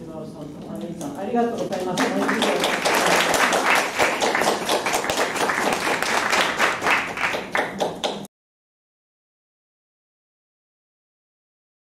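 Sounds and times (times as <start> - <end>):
audience applause: 1.7 - 8.3.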